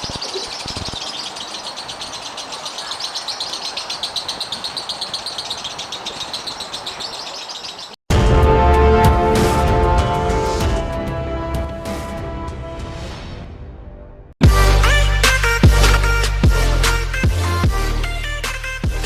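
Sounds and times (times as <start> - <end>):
lovebird chirping rapidly: 0.0 - 8.0.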